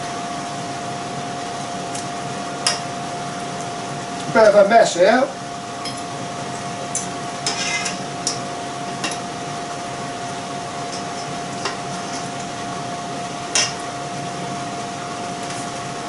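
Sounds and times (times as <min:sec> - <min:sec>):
forks clinking against a pan: 0:06.9 - 0:08.4, 0:13.6 - 0:13.8.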